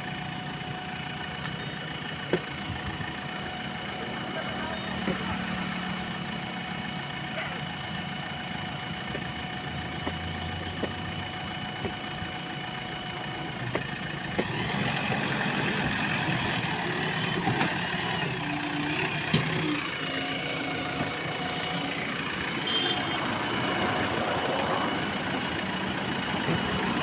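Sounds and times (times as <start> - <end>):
heavy machine engine running: 0.0 - 27.0
sharp knocks and clanks: 5.0 - 5.4, 10.0 - 11.2, 11.8 - 12.2, 13.7 - 14.6.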